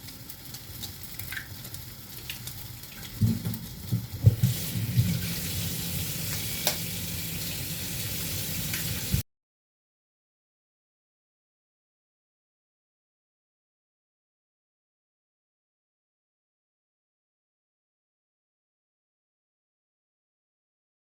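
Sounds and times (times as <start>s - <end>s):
food sizzling in a pan: 0.0s - 9.2s.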